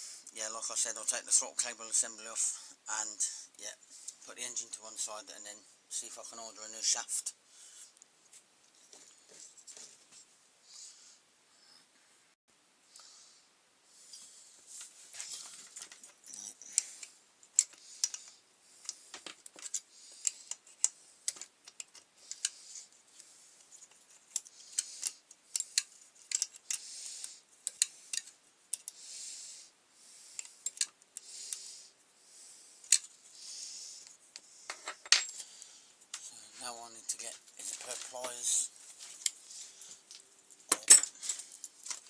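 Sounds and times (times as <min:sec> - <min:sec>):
metallic clicks of spanner and parts: 0:16.7 - 0:22.6, 0:23.8 - 0:26.8, 0:27.6 - 0:29.0, 0:30.4 - 0:31.6, 0:32.8 - 0:33.1.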